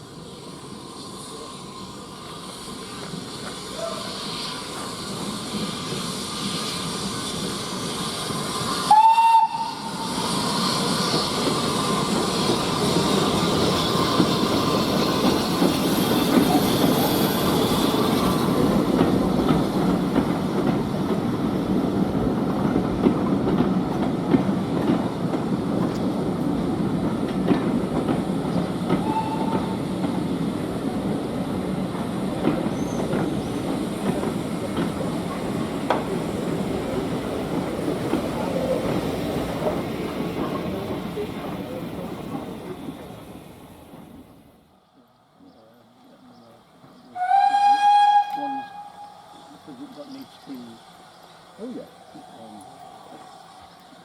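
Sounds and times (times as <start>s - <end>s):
steam locomotive running: 0.0s - 54.0s
steam whistle toot: 8.8s - 10.4s, 29.0s - 29.9s, 47.2s - 49.2s.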